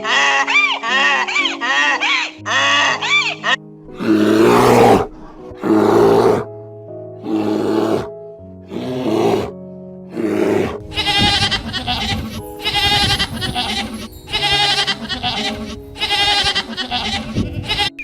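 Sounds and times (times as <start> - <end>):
background music with held tones: 0.0 - 18.0
animals bleating: 10.3 - 18.0.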